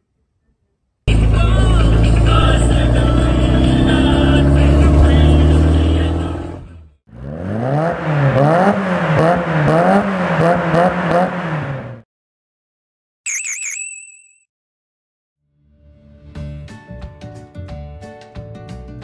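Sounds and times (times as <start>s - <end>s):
car engine revving: 1.1s - 12.0s.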